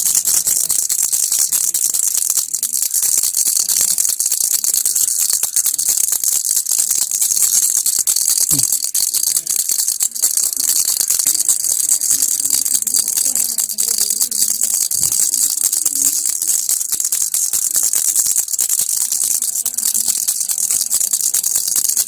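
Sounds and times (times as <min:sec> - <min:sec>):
baby rattle shaken: 0:00.0 - 0:22.0.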